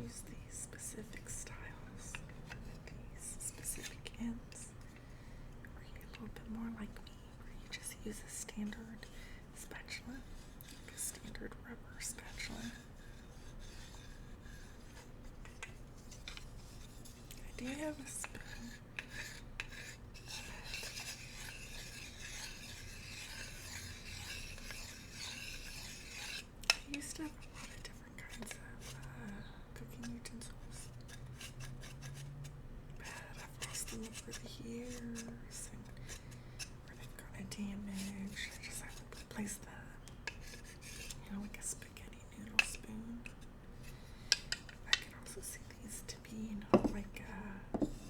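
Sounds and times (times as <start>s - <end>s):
bamboo utensils scraping: 40.2s - 41.2s.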